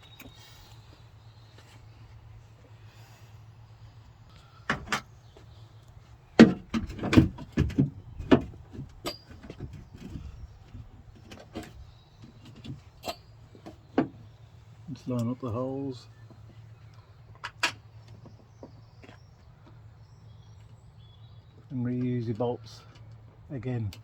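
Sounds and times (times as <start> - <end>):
knocks and rattles of latch motor: 4.7 - 5.2, 6.3 - 14.3.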